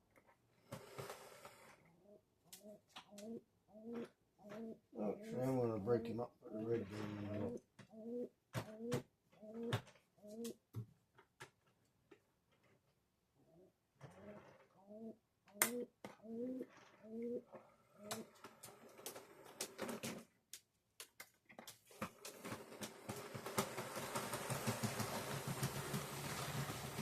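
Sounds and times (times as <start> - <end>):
plastic clicks of model cars: 18.0 - 25.0
model locomotive rumbling on track: 22.6 - 27.0.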